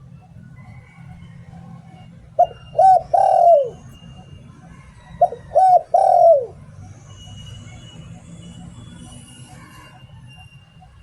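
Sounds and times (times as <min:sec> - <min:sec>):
dove cooing: 0:00.0 - 0:06.7.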